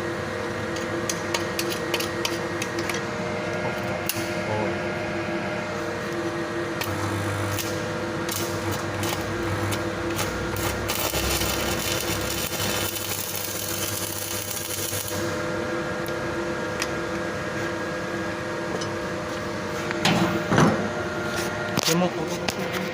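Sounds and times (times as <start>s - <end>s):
welding machine humming: 0.0s - 22.9s
welding arc crackling and hissing: 6.8s - 15.3s.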